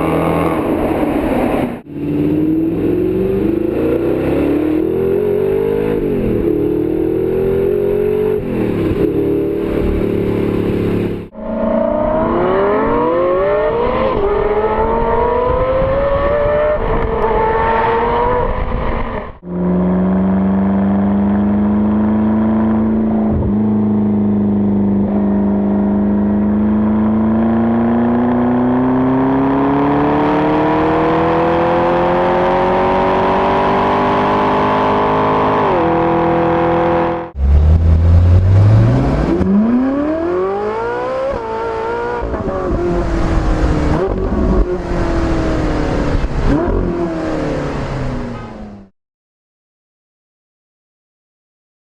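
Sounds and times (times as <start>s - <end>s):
car engines accelerating: 0.0s - 18.8s, 19.4s - 48.9s.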